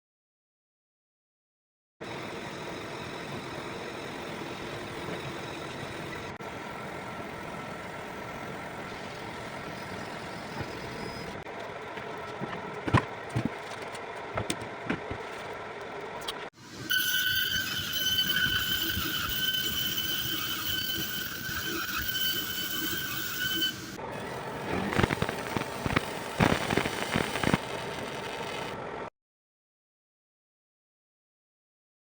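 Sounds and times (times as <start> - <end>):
laser marking machine humming: 2.0 - 11.4, 16.6 - 28.9.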